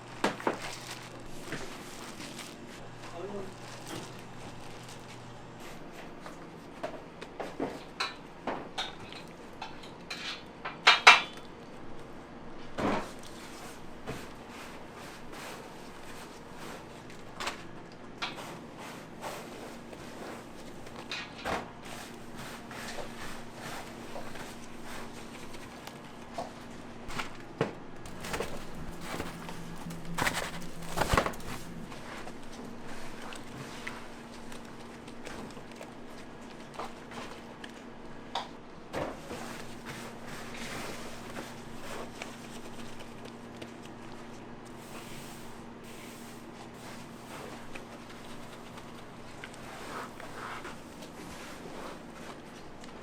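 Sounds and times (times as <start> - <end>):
utensils and trays clattering: 7.4 - 11.5, 18.2 - 26.1, 28.0 - 34.6
utensils and dishes clattering: 7.6 - 11.5.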